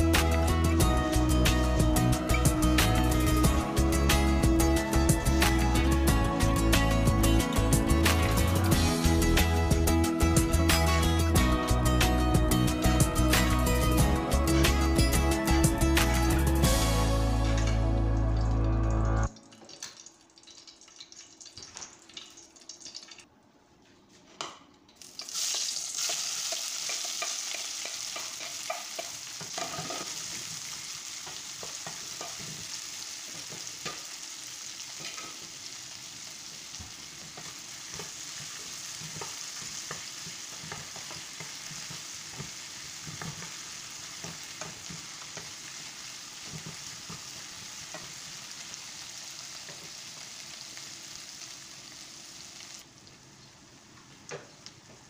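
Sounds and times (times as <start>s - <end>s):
vegetables sizzling in oil: 25.0s - 55.0s
wooden spatula tapping and scraping: 37.2s - 45.6s, 46.4s - 48.3s.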